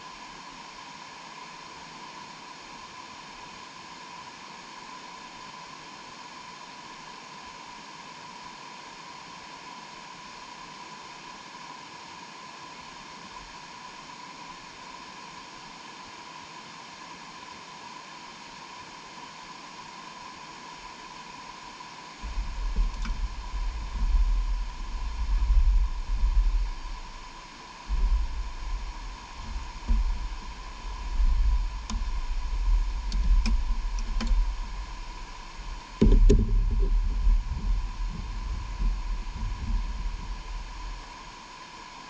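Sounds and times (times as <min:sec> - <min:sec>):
wind buffeting microphone: 0:22.2 - 0:41.3
faint clicks: 0:22.5 - 0:23.3, 0:31.0 - 0:34.7.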